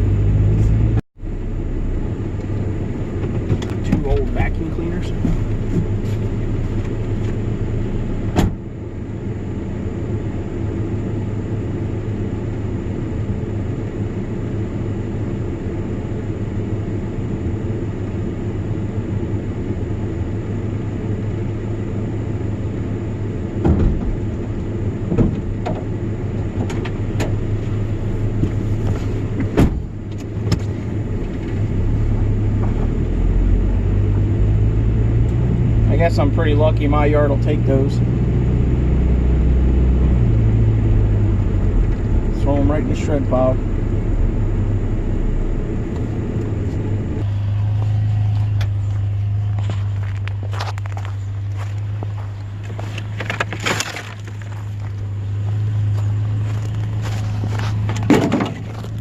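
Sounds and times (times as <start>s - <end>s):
vehicle engine humming: 0.0s - 59.0s
sharp knocks and clunks: 3.2s - 4.4s, 5.1s - 6.2s, 23.6s - 24.3s, 25.1s - 25.9s, 28.4s - 30.7s, 57.8s - 58.8s.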